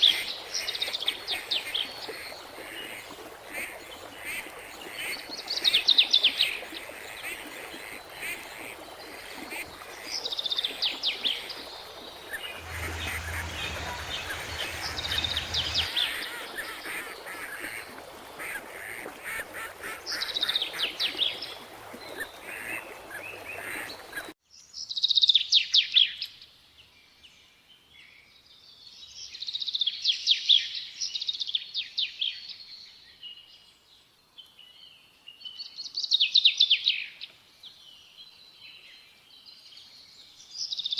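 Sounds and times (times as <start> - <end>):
birds chattering harshly: 12.4 - 15.9
background hiss: 12.4 - 16.2.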